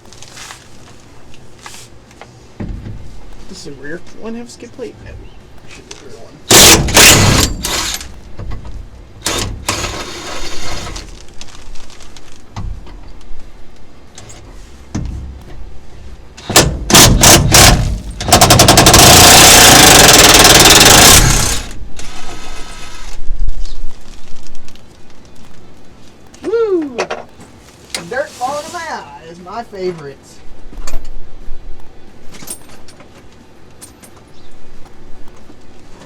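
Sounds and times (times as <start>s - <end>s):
impact wrench hammering: 6.5s - 8.2s, 16.4s - 21.7s.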